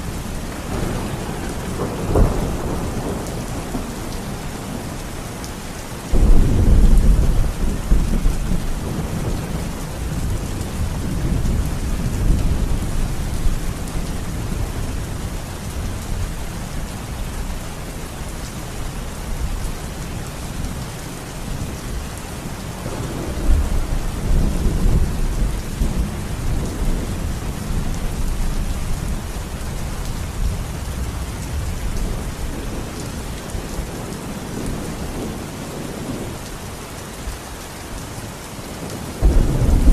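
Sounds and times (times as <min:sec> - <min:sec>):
steady rain: 0:00.0 - 0:39.9
rolling thunder: 0:00.1 - 0:05.0, 0:06.1 - 0:16.0, 0:22.8 - 0:29.2, 0:38.8 - 0:39.9.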